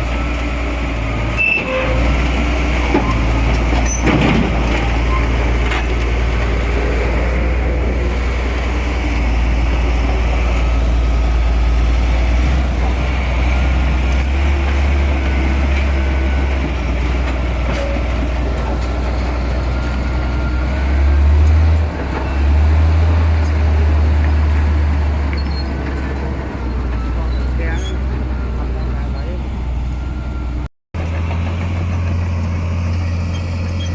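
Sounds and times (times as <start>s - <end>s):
heavy diesel engine rumbling: 0.0s - 33.9s.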